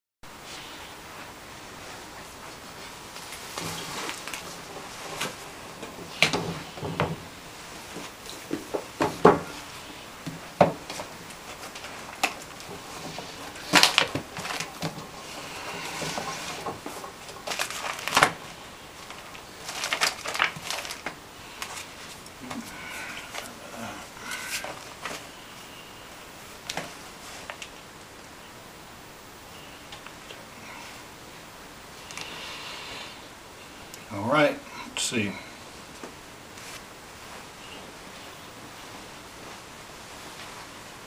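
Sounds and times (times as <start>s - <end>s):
steady background hiss: 0.3s - 41.0s
objects being handled: 1.8s - 25.3s.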